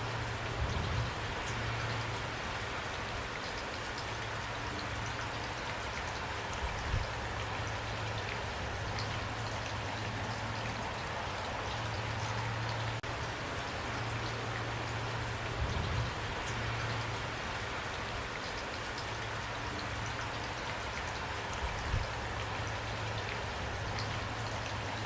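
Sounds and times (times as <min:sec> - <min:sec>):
raindrops ticking: 0:00.0 - 0:25.0
steady rain falling: 0:00.0 - 0:25.0.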